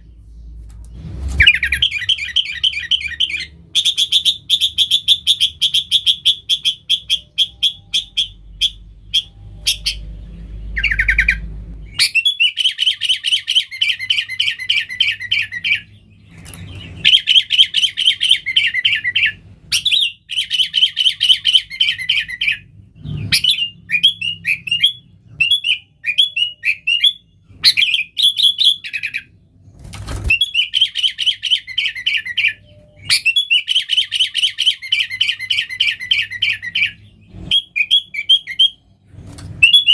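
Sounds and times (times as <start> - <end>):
bulbul chattering song: 1.4 - 22.7.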